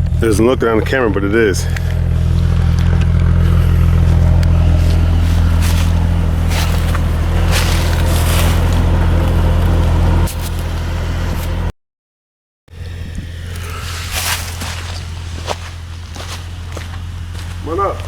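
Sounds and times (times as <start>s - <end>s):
off-road vehicle engine drone: 0.0s - 11.7s, 12.7s - 18.0s.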